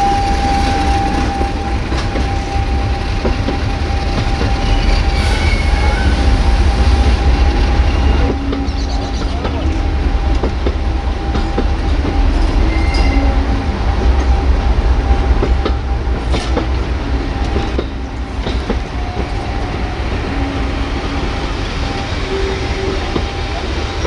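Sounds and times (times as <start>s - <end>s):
train wheels rumbling on track: 0.0s - 24.0s
thin squealing tones: 12.3s - 13.4s.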